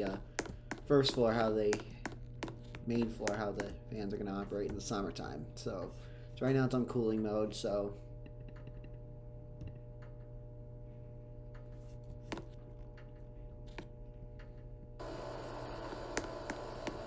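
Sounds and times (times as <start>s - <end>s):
hvac equipment humming: 0.0s - 17.0s.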